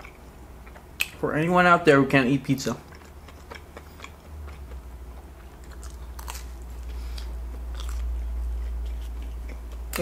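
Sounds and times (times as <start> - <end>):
chewing pizza: 2.5 - 10.0.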